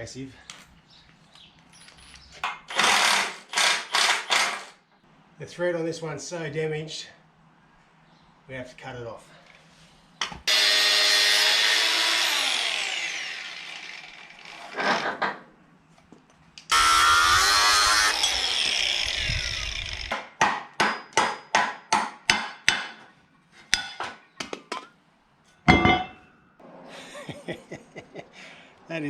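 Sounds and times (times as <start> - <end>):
power tool cutting: 2.7 - 4.8, 10.5 - 15.1, 16.7 - 20.1.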